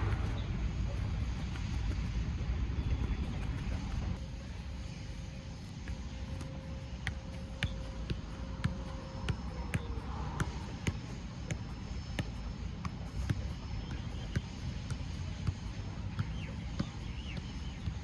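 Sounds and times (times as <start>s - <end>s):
football being kicked: 0.0s - 2.2s, 2.8s - 5.0s, 5.6s - 18.0s
low rumble: 0.0s - 4.2s.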